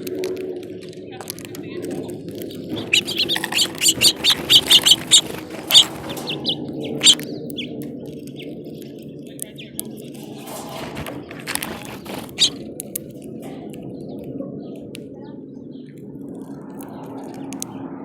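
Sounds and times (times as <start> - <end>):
small songbirds chirping: 1.2 - 10.6, 11.2 - 17.9.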